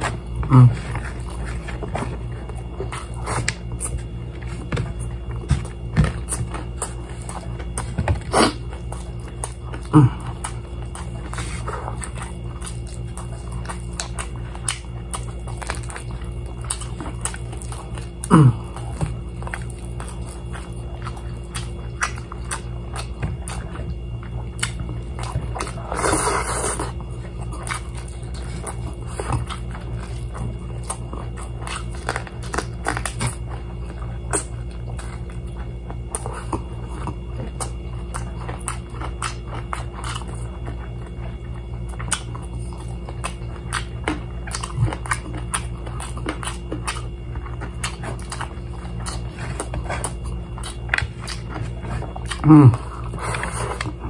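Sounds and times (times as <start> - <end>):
person chewing crispy chicken: 0.0 - 54.0
steady low hum: 0.0 - 54.0.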